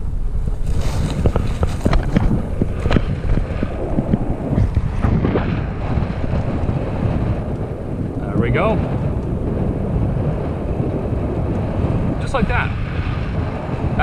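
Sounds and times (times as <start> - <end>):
bike rattling over rough ground: 0.0 - 14.0
wind buffeting microphone: 0.0 - 14.0.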